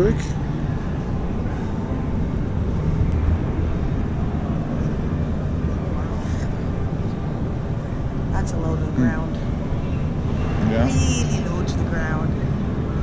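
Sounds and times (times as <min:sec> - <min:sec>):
people talking indistinctly: 0:00.0 - 0:00.4, 0:08.4 - 0:09.4, 0:10.5 - 0:12.4
steady low hum: 0:00.0 - 0:13.0.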